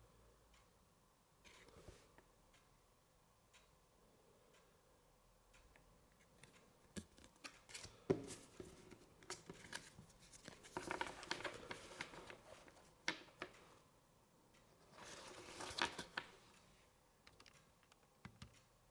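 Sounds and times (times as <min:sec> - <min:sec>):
small clicks and taps: 0:05.6 - 0:13.7, 0:17.2 - 0:18.7.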